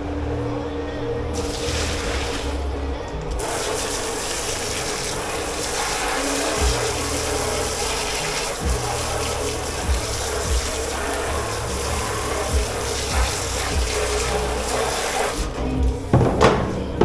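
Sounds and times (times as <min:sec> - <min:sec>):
running water rushing: 0:01.3 - 0:17.0
music with bass line: 0:15.4 - 0:17.0
dull knocks: 0:16.1 - 0:17.0.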